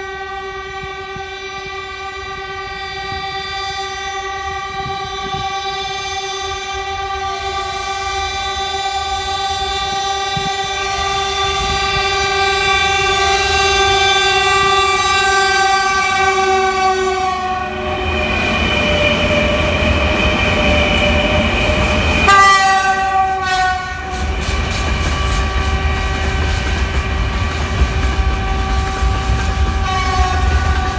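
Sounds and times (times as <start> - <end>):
locomotive horn chord: 0.0 - 19.7, 22.2 - 24.4, 25.1 - 30.9
low rumble of passing train: 0.0 - 30.9.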